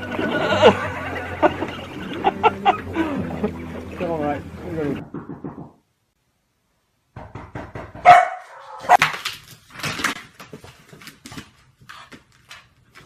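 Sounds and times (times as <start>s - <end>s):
dog barking: 8.0s - 9.0s.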